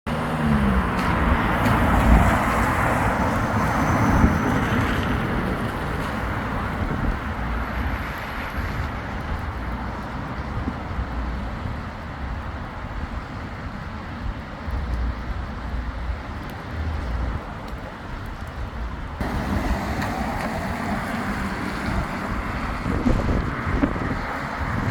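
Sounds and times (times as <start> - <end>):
vehicle engine rumble: 0.1 - 24.9
tyre hiss on wet road: 19.2 - 24.8.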